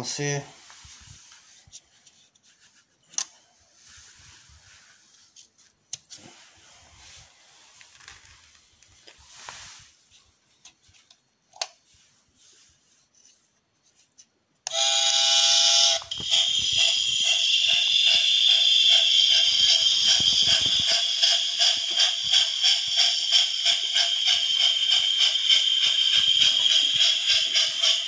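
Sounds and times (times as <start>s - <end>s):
model train whistle: 14.7s - 28.0s
rhythmic steam chuffing and hiss: 14.8s - 28.0s.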